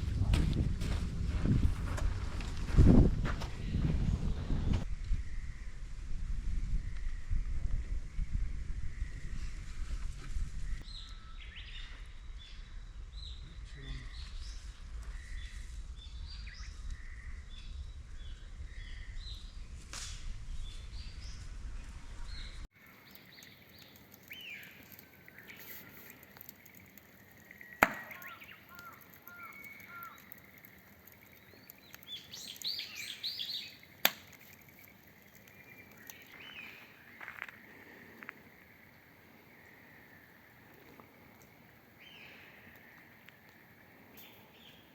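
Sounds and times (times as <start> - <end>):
small birds chirping: 10.7 - 19.8, 20.5 - 44.9
low rumble: 11.4 - 22.7
sharp clicks: 23.1 - 33.0, 33.6 - 36.4.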